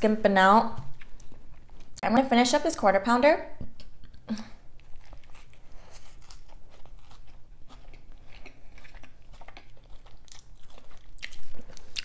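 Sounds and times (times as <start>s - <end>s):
person chewing food: 0.8s - 2.0s, 3.7s - 12.0s.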